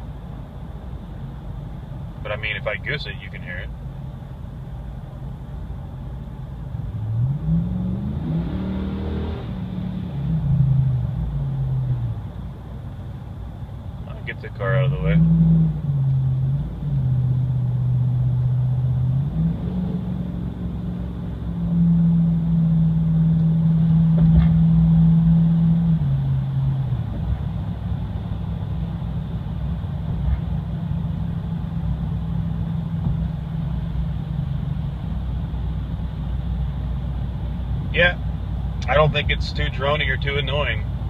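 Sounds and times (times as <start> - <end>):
vehicle exhaust note from inside cab: 10.1 - 41.0.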